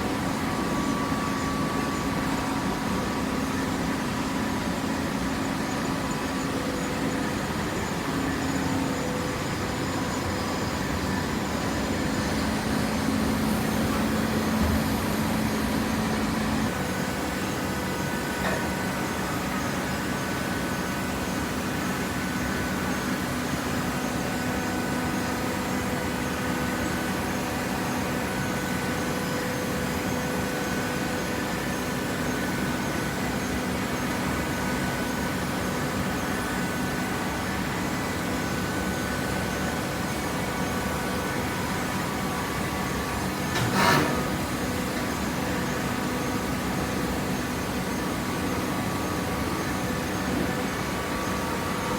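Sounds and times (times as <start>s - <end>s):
hydraulic baler motor hum: 10.8s - 19.9s, 42.6s - 47.1s.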